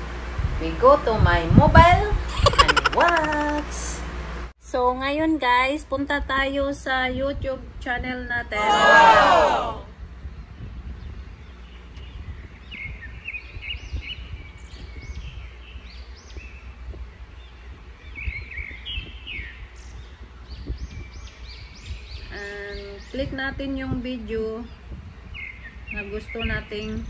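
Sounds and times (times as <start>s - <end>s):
steady low rumble: 0.0s - 4.5s
birds chirping: 2.3s - 3.9s, 10.3s - 27.0s.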